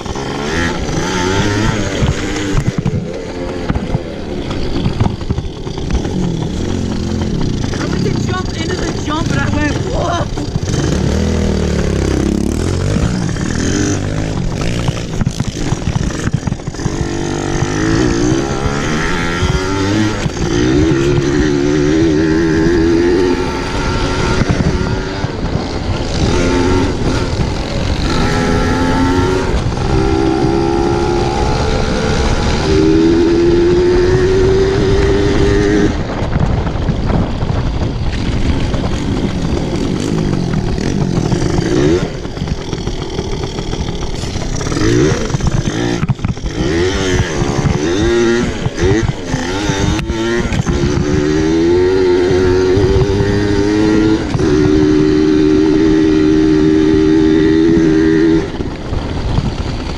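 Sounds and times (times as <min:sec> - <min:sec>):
pit bike engine revving: 0:00.0 - 0:59.9
wind noise: 0:00.0 - 0:59.9.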